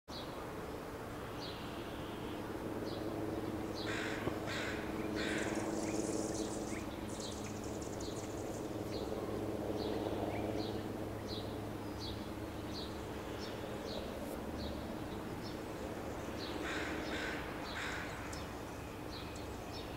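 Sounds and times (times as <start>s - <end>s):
steady low hum: 0.2s - 19.9s
hummingbird buzzy chatter: 1.4s - 19.9s
hummingbird chip calls: 3.7s - 9.2s
harsh bird calls: 3.7s - 19.9s.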